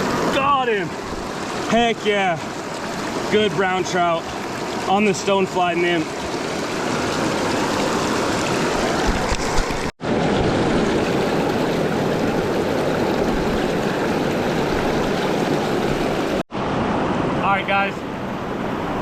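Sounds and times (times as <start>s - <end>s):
rushing creek water: 0.0s - 19.0s.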